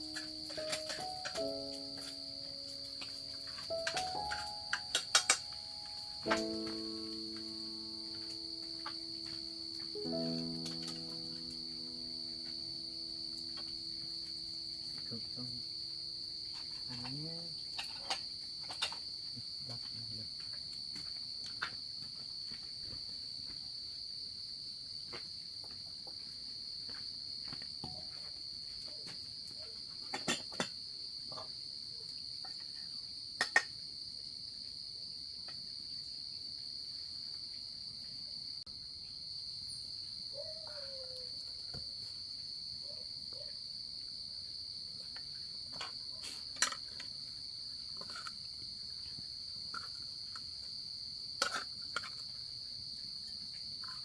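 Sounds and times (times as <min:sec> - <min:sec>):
insect chorus trilling: 0:00.0 - 0:21.8, 0:38.8 - 0:54.0.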